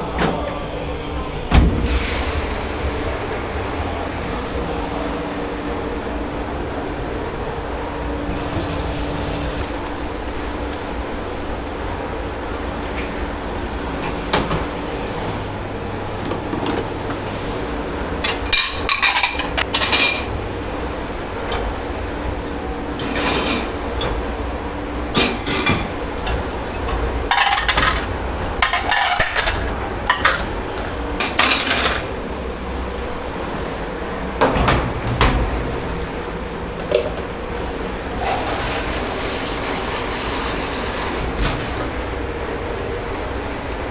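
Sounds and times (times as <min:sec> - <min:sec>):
kitchen machinery hum: 0:00.0 - 0:43.9
dishes and cutlery clattering: 0:18.2 - 0:20.3, 0:23.0 - 0:24.2, 0:25.2 - 0:32.1.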